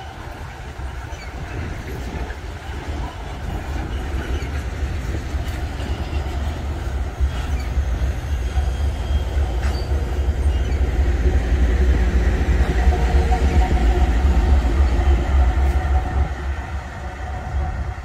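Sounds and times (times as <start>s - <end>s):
train rumbling on rails: 0.0s - 18.0s
wheel squeals: 3.4s - 11.2s.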